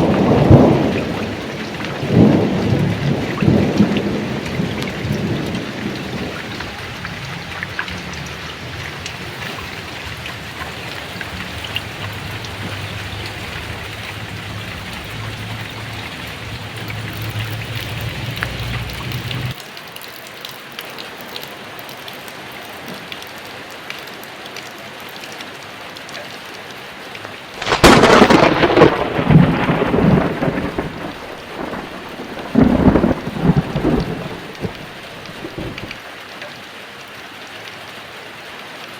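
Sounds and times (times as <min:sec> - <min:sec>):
thunder rumbling: 0:00.0 - 0:19.6, 0:27.6 - 0:36.0
heavy rain falling: 0:00.0 - 0:38.9.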